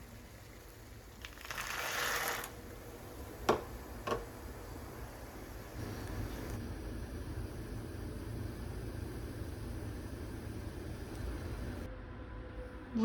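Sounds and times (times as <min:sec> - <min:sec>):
low steady hum: 0:02.6 - 0:13.0.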